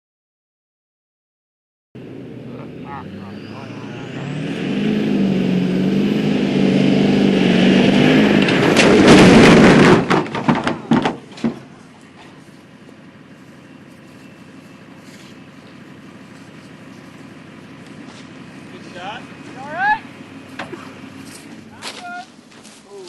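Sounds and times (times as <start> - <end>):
pickup truck engine running hard: 2.0 - 22.6
heavy truck landing impact: 8.2 - 12.4
clattering knocks and bangs: 8.3 - 12.4.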